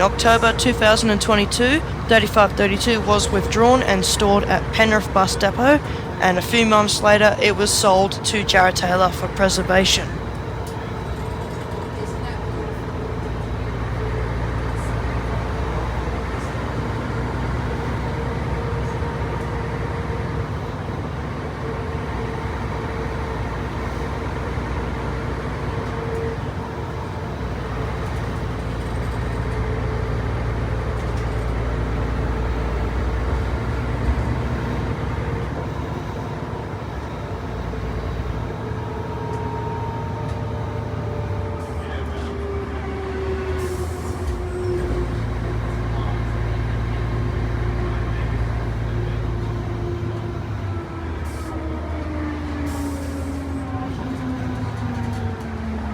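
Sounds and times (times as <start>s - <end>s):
bus diesel engine rumbling: 0.0s - 55.9s.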